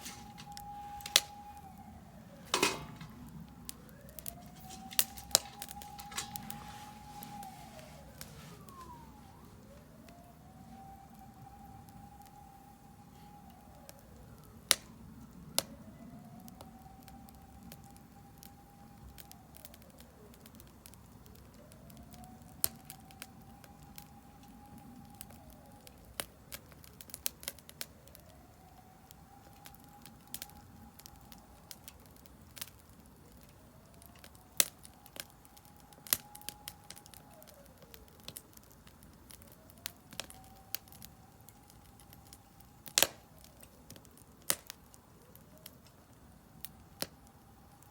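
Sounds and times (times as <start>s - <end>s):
fire hissing: 0.0s - 9.7s
faint siren wailing: 0.0s - 47.9s
firewood crackling and popping: 0.0s - 47.9s.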